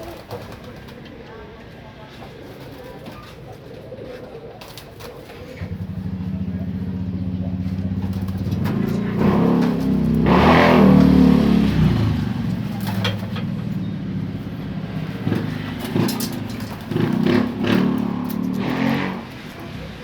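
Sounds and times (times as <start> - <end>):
vehicle engine running: 5.3 - 20.0.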